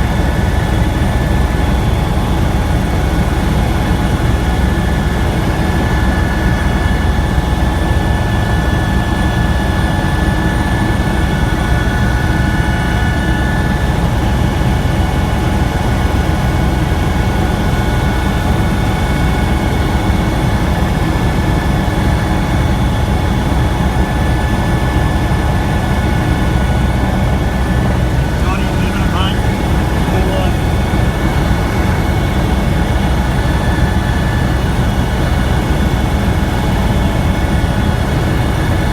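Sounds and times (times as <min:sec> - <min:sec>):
helicopter rotor and engine noise: 0:00.0 - 0:38.9
high whine: 0:25.6 - 0:35.2.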